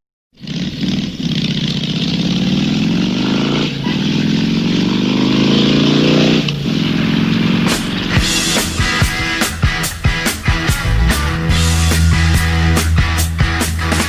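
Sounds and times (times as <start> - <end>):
motorcycle engine accelerating: 0.4 - 14.0.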